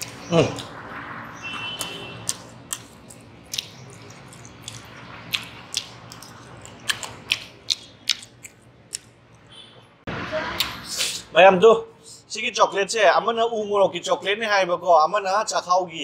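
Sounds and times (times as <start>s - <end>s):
person chewing food: 0.0s - 0.8s, 1.8s - 9.4s
wet mouth clicks and smacks: 1.8s - 9.2s.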